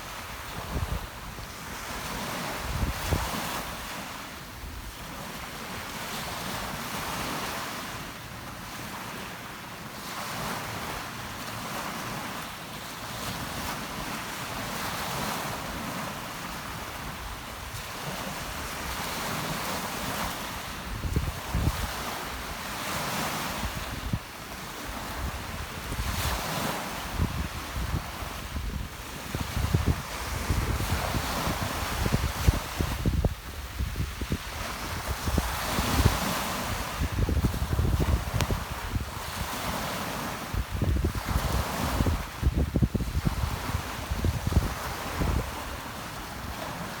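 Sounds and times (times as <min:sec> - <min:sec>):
wind buffeting microphone: 0:00.0 - 0:03.7, 0:20.2 - 0:22.1, 0:24.9 - 0:39.8, 0:40.4 - 0:46.6
sea surf washing in: 0:00.0 - 0:47.0.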